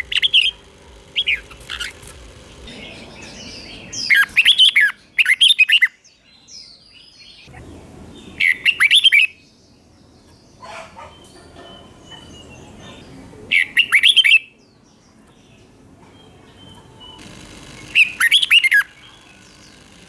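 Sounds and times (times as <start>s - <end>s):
bird singing warbled phrases: 0.0s - 5.8s.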